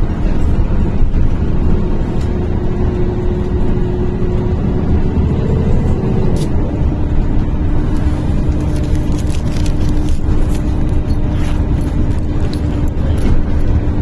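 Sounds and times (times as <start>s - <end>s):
bus engine and road rumble: 0.0s - 14.0s
steady whine: 0.0s - 14.0s.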